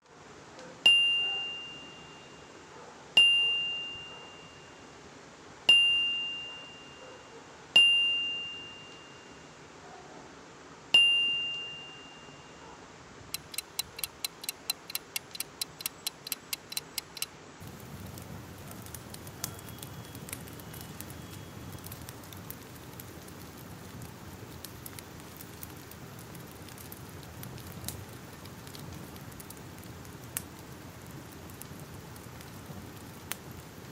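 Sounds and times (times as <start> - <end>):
bright dings: 0.9 - 2.5, 3.2 - 4.8, 5.7 - 7.2, 7.8 - 9.5, 11.0 - 12.6
fire crackling and popping: 13.3 - 33.9
sharp clicks: 13.4 - 17.3.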